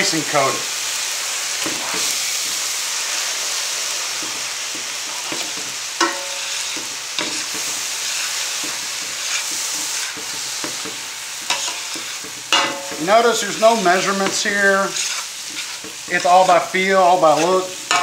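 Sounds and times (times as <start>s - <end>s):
fried rice sizzling: 0.0s - 18.0s
metal spoon scraping pan: 4.2s - 18.0s
spoon clinking against pan: 6.0s - 6.4s.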